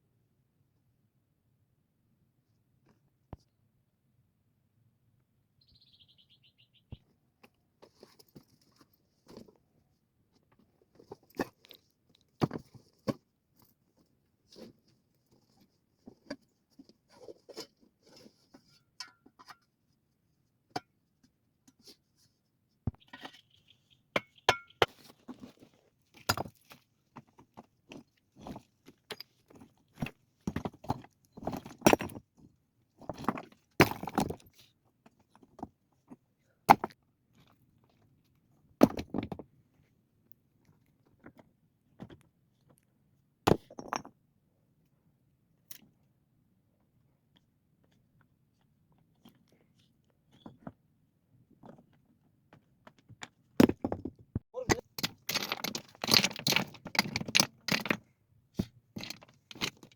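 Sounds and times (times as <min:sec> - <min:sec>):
stones knocking and clinking: 0:26.2 - 0:26.7, 0:54.9 - 0:59.9.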